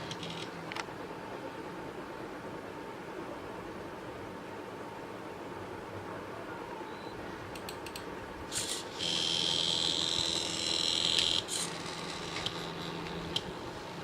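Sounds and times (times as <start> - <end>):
stepper motor whine: 8.5 - 13.4.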